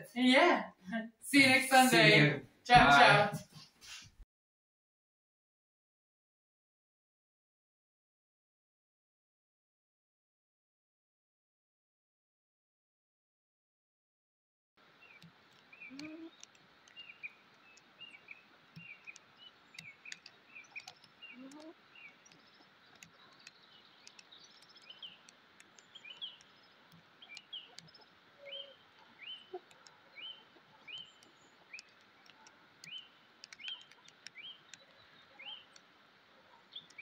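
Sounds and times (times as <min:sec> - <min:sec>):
birds chirping faintly: 0:14.8 - 0:37.0
lower rising bird calls: 0:15.1 - 0:35.8.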